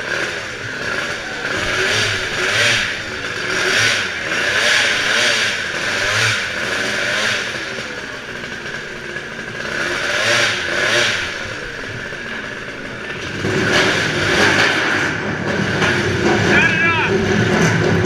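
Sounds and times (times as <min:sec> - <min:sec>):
monster truck engine revving: 0:00.0 - 0:18.0.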